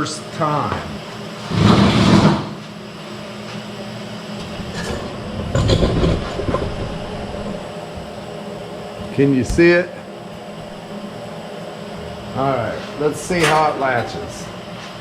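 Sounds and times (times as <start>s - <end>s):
metal rattling and scraping: 4.6s - 7.6s.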